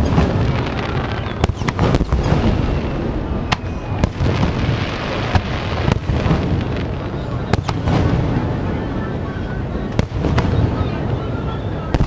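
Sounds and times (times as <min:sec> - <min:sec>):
sharp firework cracks: 0:00.0 - 0:08.4, 0:09.9 - 0:11.2
fireworks booming: 0:00.0 - 0:12.0.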